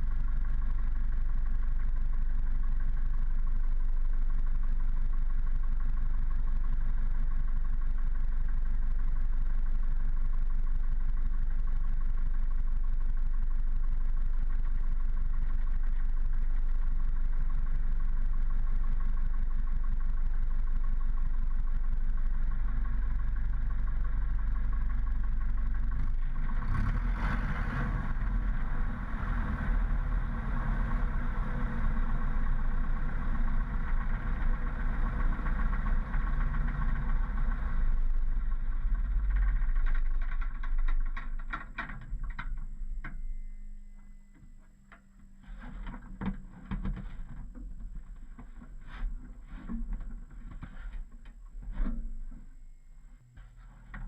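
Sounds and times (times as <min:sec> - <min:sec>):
aircraft engine idling: 0:00.0 - 0:27.0, 0:28.0 - 0:45.3
knocks and clatter: 0:38.7 - 0:43.2.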